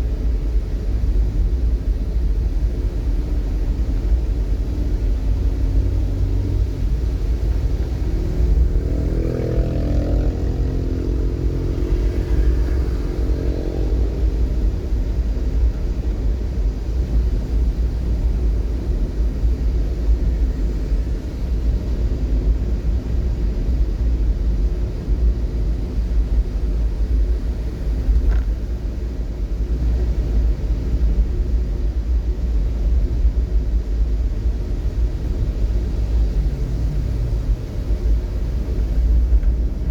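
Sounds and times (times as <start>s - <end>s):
road traffic rumble: 0.0s - 39.9s
vehicle engine revving: 4.7s - 15.9s, 34.8s - 39.9s.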